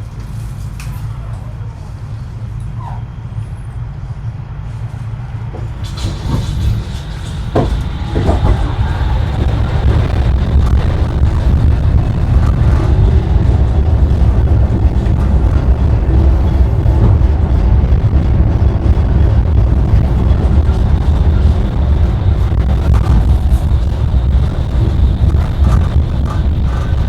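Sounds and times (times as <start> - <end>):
tram wheels rumbling: 0.0 - 27.0
sharp knocks and clatters: 5.6 - 18.2.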